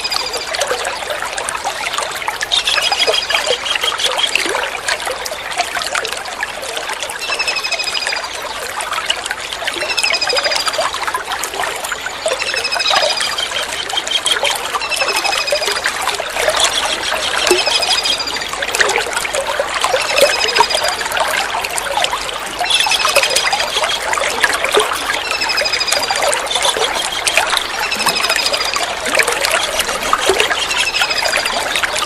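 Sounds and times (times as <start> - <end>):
running water: 0.0 - 32.0
kingfisher rattling call: 22.6 - 24.1.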